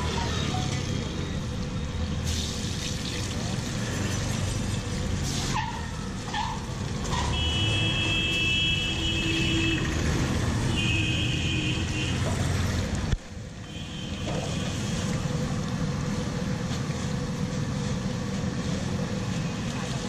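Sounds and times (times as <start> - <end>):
street traffic noise: 0.0 - 20.0
vehicle horn: 7.3 - 10.0, 10.6 - 12.3, 13.6 - 15.1.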